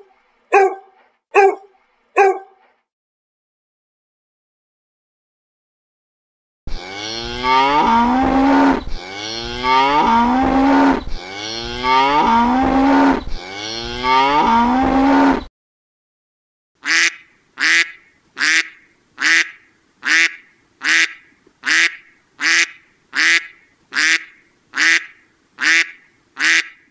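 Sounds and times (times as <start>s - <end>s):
duck quacking: 0.0s - 0.8s, 1.4s - 1.6s, 2.2s - 2.5s, 16.8s - 26.9s
cow mooing: 6.7s - 15.4s.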